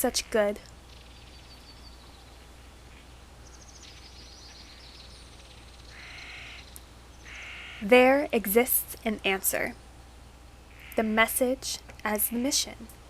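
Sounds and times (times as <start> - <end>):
small birds or insects chirping: 0.0 - 7.9, 10.6 - 11.6
steady low hum: 0.0 - 13.0
crow cawing: 5.9 - 7.8.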